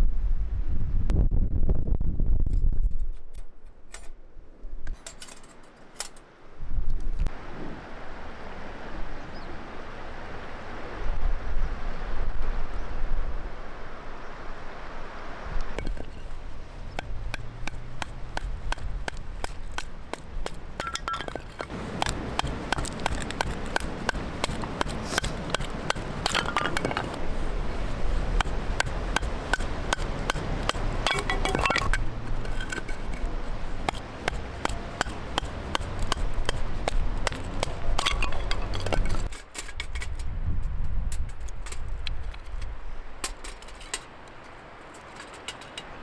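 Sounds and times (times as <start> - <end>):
wood fire crackling: 15.8 - 39.4
metallic pings: 20.8 - 27.4, 28.4 - 39.3.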